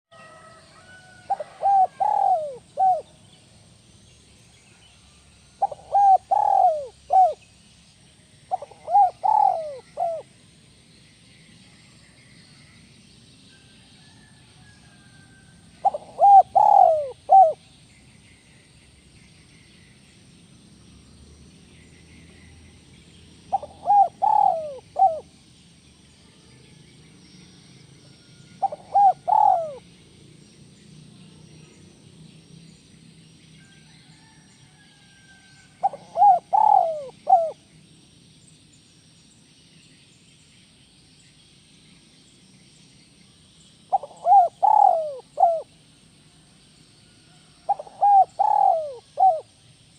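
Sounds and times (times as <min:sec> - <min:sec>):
dove cooing: 0:00.2 - 0:03.2, 0:05.6 - 0:07.4, 0:08.5 - 0:10.4, 0:15.7 - 0:17.6, 0:23.4 - 0:25.3, 0:28.6 - 0:30.0, 0:35.8 - 0:37.7, 0:43.9 - 0:45.8, 0:47.6 - 0:49.5.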